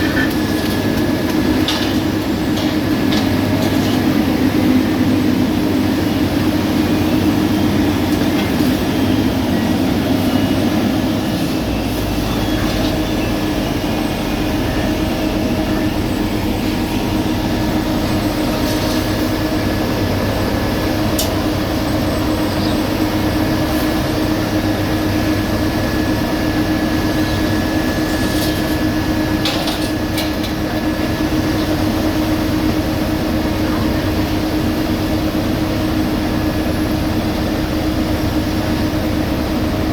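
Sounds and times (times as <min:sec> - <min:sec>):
diesel engine drone: 0:00.0 - 0:39.9.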